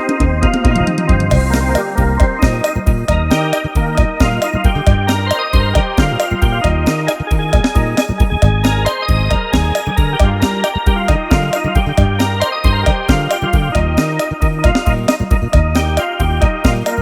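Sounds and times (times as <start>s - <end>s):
electronic organ playing: 0.0s - 17.0s
heavy bass line: 0.0s - 17.0s
fast drum beat: 0.2s - 17.0s.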